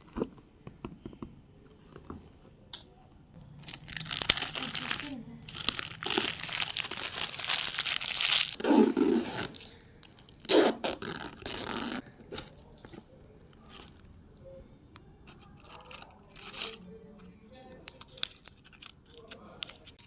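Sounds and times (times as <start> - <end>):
packaging crinkling and tearing: 3.5 - 14.0, 15.6 - 16.8, 17.9 - 20.0.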